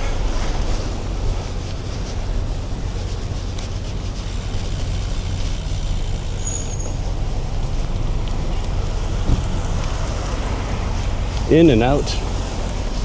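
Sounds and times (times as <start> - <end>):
traffic rumble: 0.0 - 13.0
brief high squeak: 6.3 - 7.0.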